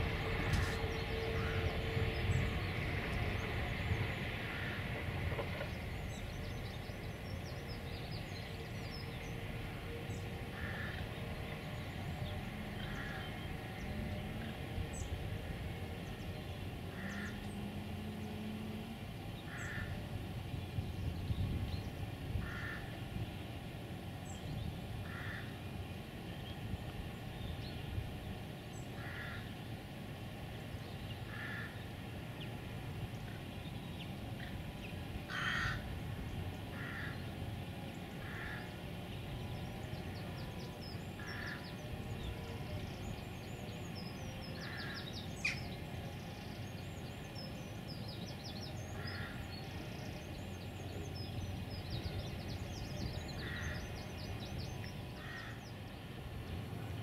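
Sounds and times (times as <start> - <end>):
bird calling: 34.4 - 38.8, 40.1 - 43.1, 48.9 - 56.0.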